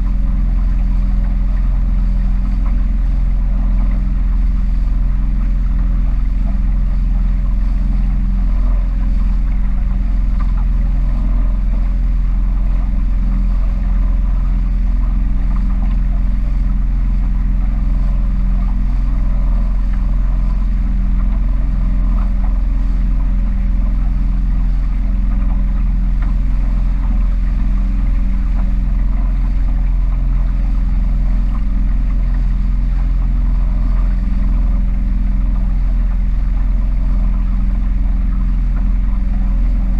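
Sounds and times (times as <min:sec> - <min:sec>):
powerboat engine droning: 0:00.0 - 0:39.9.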